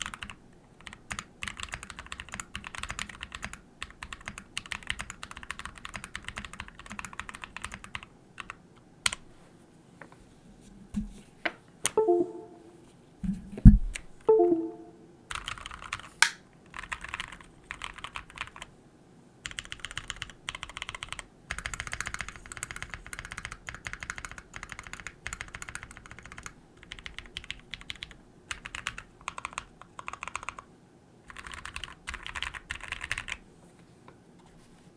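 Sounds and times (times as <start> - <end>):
mechanical keyboard typing: 0.0 - 8.6, 16.8 - 18.7, 19.5 - 30.7, 31.3 - 33.4.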